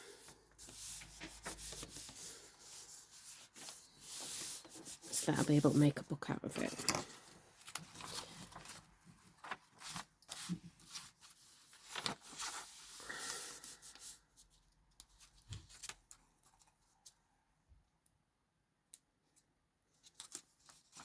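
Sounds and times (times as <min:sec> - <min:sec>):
paper rustling: 0:00.2 - 0:05.9, 0:06.6 - 0:14.2.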